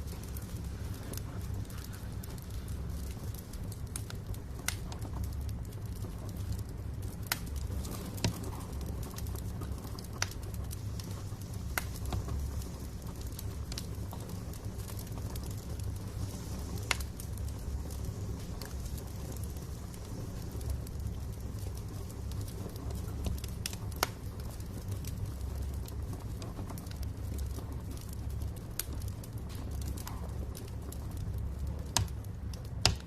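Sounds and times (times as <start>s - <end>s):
low rumble of burning: 0.0s - 33.0s
logs popping and snapping: 31.8s - 33.0s.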